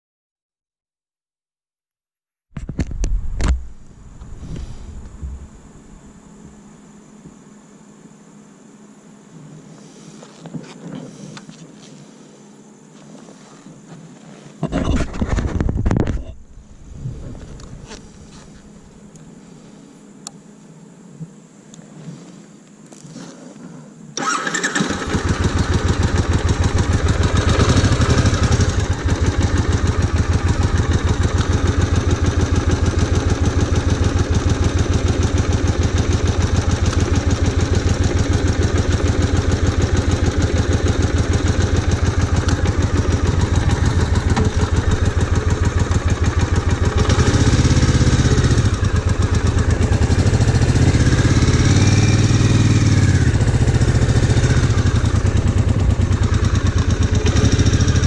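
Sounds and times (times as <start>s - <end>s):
motorcycle engine running and revving: 24.2s - 58.0s.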